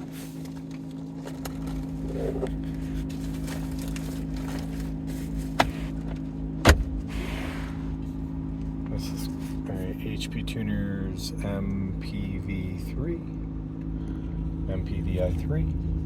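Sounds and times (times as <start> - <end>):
car engine idling: 0.0 - 16.0
knock in car: 6.6 - 6.9.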